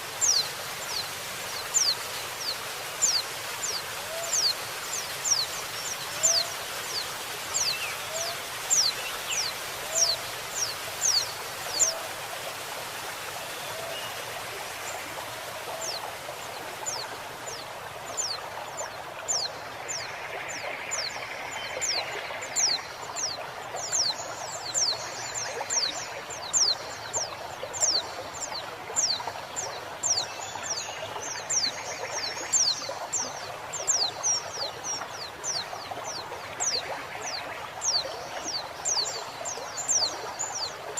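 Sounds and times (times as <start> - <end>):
trickling stream: 0.0 - 40.9.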